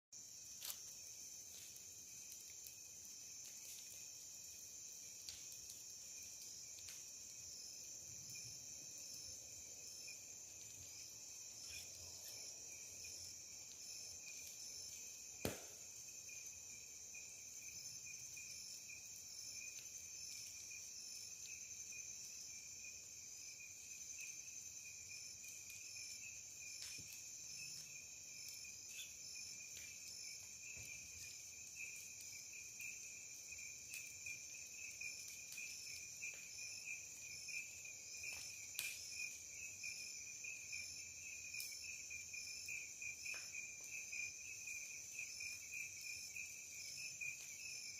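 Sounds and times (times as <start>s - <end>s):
night insects trilling: 0.2s - 47.9s
sharp pop: 15.4s - 15.9s.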